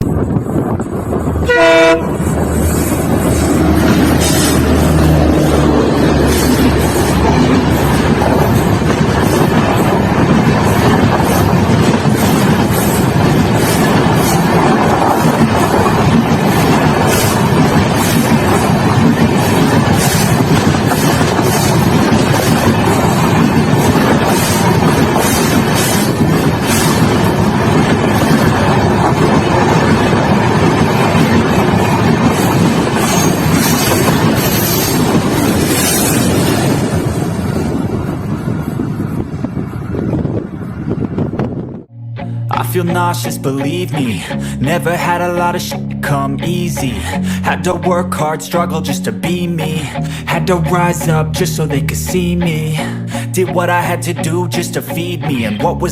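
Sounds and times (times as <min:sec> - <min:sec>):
train wheels clacking on rail joints: 0:00.0 - 0:41.4
train rumbling past: 0:00.0 - 0:55.9.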